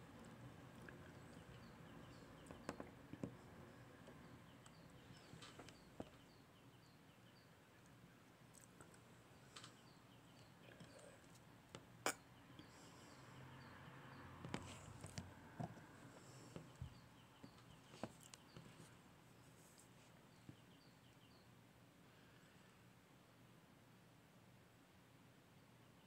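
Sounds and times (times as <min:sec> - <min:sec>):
small bird chirping: 0:00.0 - 0:15.4, 0:20.2 - 0:21.6.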